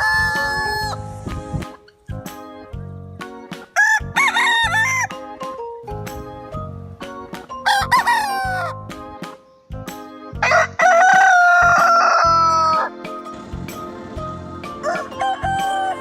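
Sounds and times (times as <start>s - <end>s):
rooster crowing: 0.0s - 1.0s, 3.8s - 5.1s, 7.7s - 8.7s, 10.4s - 12.9s, 14.7s - 16.0s
background music with steady beat: 0.0s - 16.0s.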